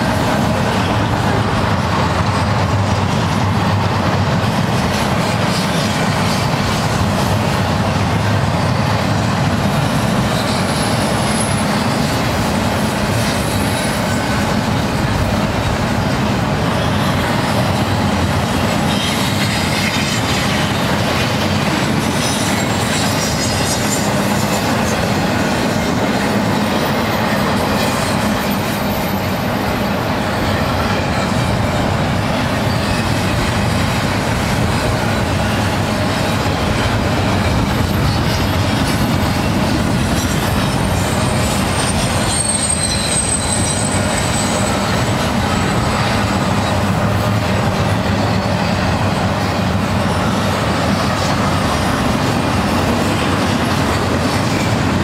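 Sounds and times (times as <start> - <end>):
freight train wheels rumbling: 0.0 - 55.0
high-pitched wheel squeals: 26.3 - 33.8, 37.6 - 46.9.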